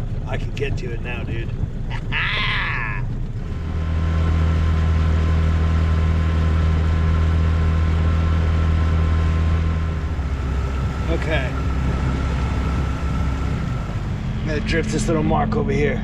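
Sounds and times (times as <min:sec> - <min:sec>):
outboard motor running: 0:03.1 - 0:15.2.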